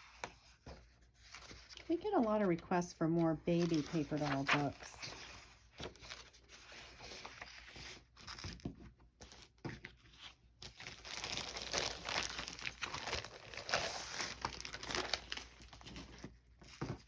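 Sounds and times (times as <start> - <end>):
packaging crinkling and rustling: 9.3 - 17.0.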